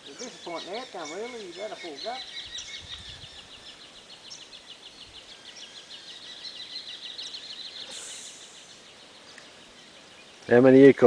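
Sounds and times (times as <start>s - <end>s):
bird trilling: 0.0s - 10.4s
higher bird calls: 0.0s - 10.6s.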